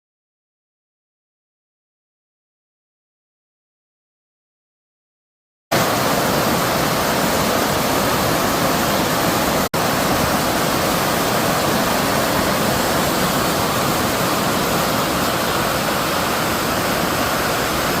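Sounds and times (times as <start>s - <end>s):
stream rushing: 5.7s - 18.0s.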